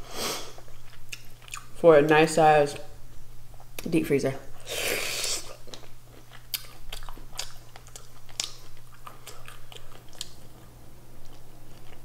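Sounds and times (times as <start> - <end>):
wet chewing clicks and smacks: 0.6 - 1.7, 5.6 - 12.0.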